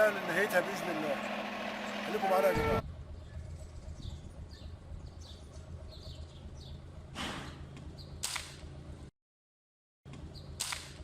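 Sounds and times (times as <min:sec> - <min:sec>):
low steady rumble: 0:02.5 - 0:09.1
small birds chirping: 0:03.1 - 0:07.0, 0:07.8 - 0:08.2, 0:10.2 - 0:10.6
sharp crack: 0:08.2 - 0:08.6, 0:10.6 - 0:11.0.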